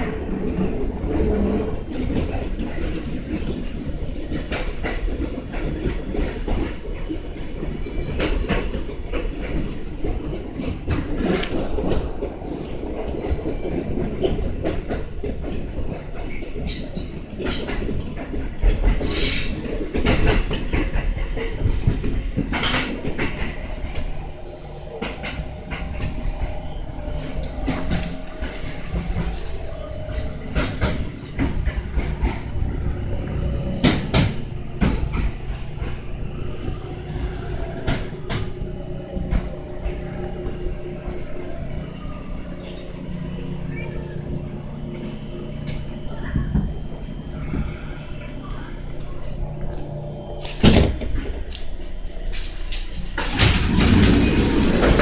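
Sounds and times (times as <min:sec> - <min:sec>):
train rumble: 0:00.0 - 0:55.0
wheels clacking over rail joints: 0:00.0 - 0:55.0.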